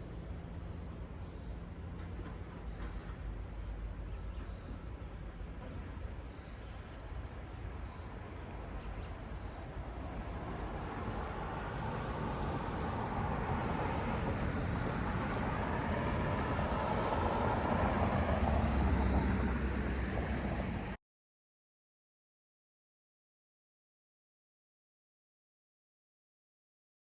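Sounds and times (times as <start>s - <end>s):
train rumbling: 0.0s - 6.4s, 7.1s - 21.0s.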